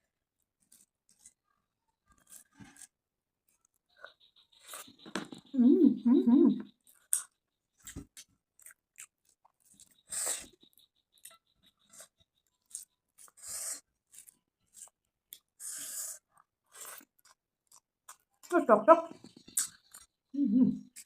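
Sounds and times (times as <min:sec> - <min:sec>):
wet chewing mouth clicks: 0:06.6 - 0:18.3, 0:19.2 - 0:20.2.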